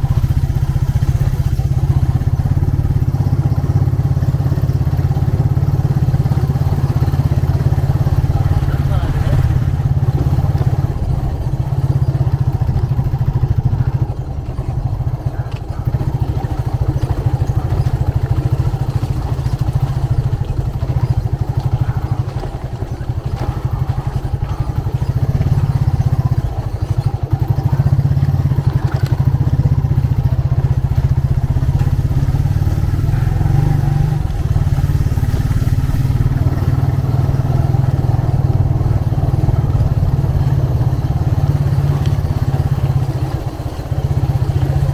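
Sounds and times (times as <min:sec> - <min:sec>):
motorcycle engine rumbling: 0:00.0 - 0:44.9.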